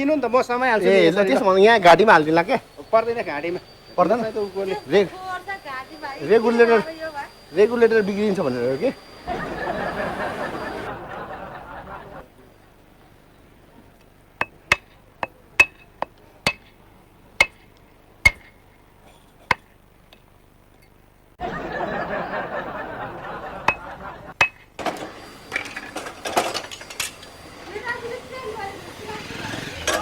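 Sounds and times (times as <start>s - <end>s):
hammer on metal: 14.4s - 16.7s, 17.4s - 18.6s, 23.7s - 24.6s.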